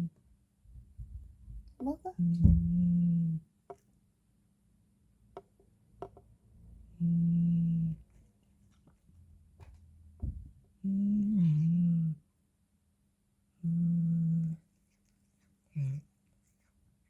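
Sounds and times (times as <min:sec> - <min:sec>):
person humming: 0:07.0 - 0:08.0, 0:10.8 - 0:12.2, 0:13.6 - 0:14.6.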